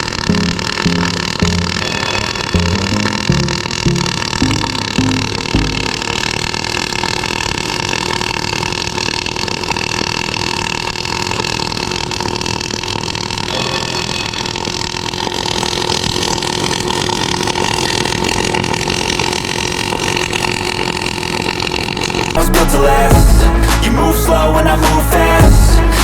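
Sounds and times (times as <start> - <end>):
faint hum: 0.0 - 6.8
welding arc hissing and crackling: 0.0 - 24.0.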